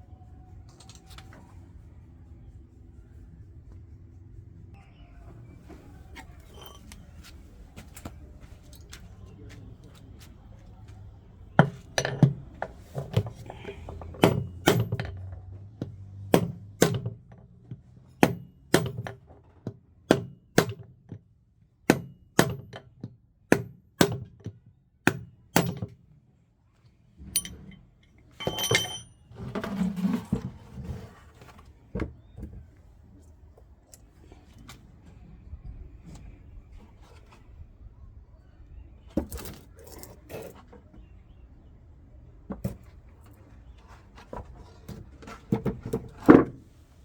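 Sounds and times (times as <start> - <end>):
metallic rattling: 27.4 - 29.2.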